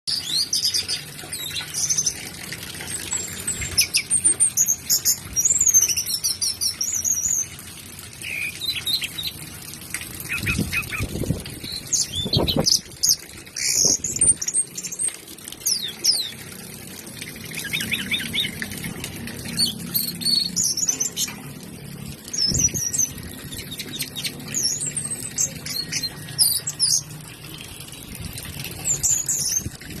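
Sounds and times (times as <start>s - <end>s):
bird singing whistles and trills: 10.3s - 15.0s.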